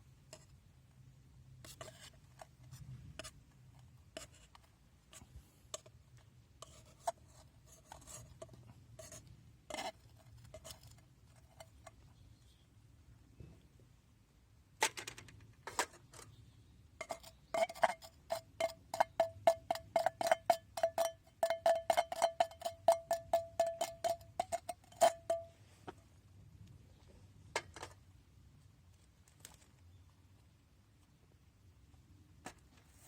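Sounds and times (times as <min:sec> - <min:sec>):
metal utensil clinking on cookware: 0:18.6 - 0:25.5.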